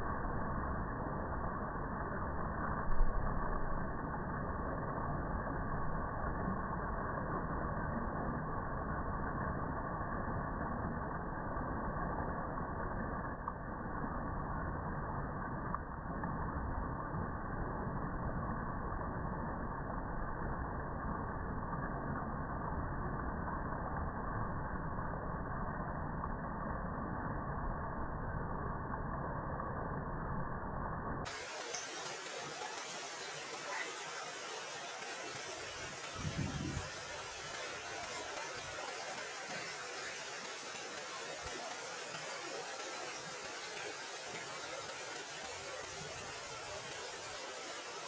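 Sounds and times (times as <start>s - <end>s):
river water rushing: 31.3s - 48.0s.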